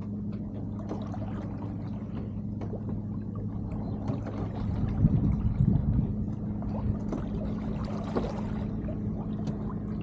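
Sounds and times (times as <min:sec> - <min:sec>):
steady low hum: 0:00.0 - 0:10.0
water gurgling along a hull: 0:00.0 - 0:10.0
small splashes and ticks: 0:06.2 - 0:10.0.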